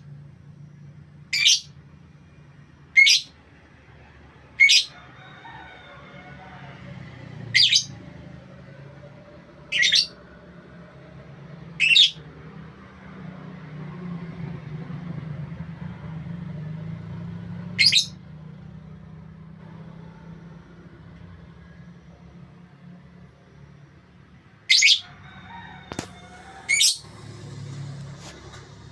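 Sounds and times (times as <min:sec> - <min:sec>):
steady low hum: 0:00.0 - 0:04.4
bird giving sharp high calls: 0:01.3 - 0:01.8, 0:03.0 - 0:03.4, 0:04.6 - 0:04.9, 0:07.5 - 0:08.0, 0:09.7 - 0:10.2, 0:11.8 - 0:12.2, 0:17.8 - 0:18.2, 0:24.7 - 0:25.1, 0:26.6 - 0:27.1.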